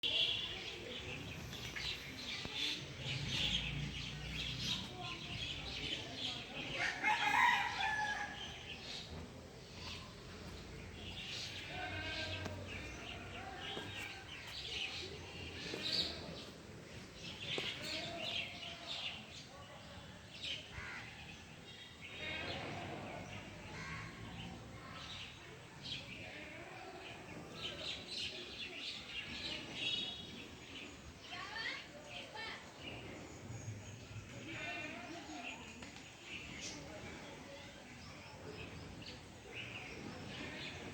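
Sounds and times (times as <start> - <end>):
birds chirping and trilling: 0.0 - 19.4
birds chirping: 0.0 - 40.9
outdoor background noise: 0.0 - 40.9.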